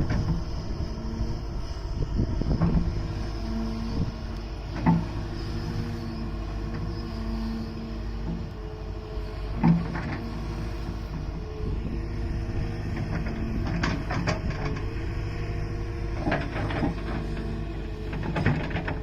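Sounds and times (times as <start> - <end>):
excavator diesel engine running: 0.0 - 19.0
machine knocks and scrapes: 4.7 - 5.2, 9.5 - 11.3, 12.8 - 15.0, 16.1 - 19.0.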